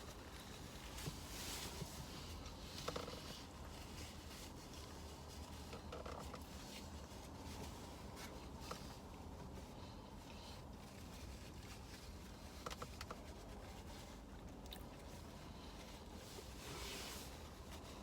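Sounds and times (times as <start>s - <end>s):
chewing: 14.3s - 15.2s
soft mouth clicks: 14.6s - 14.9s.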